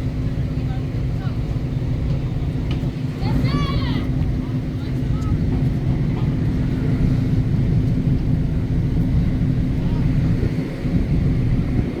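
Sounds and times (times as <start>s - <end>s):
ferry engine rumbling: 0.0s - 12.0s.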